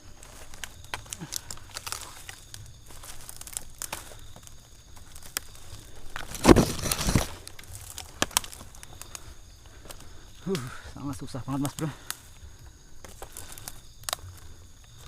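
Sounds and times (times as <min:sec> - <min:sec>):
rustling of dry leaves: 0:00.0 - 0:15.0.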